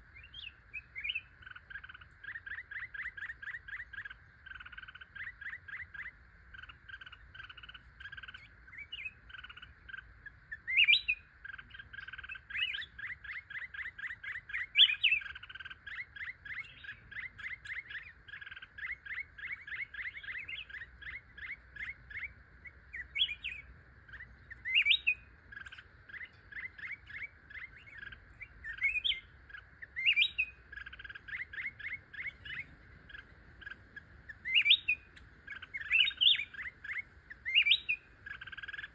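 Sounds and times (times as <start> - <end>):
birds chirping quickly: 0.0 - 38.9
loud rising bird calls: 0.0 - 38.9.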